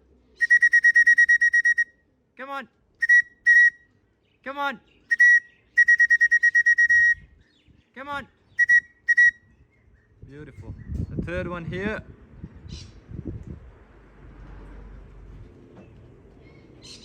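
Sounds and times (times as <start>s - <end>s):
whistle trilling blasts: 0.4s - 1.9s, 3.0s - 3.8s, 5.1s - 7.2s, 8.6s - 9.4s
man calling: 0.4s - 3.8s, 4.5s - 7.2s, 8.0s - 9.3s.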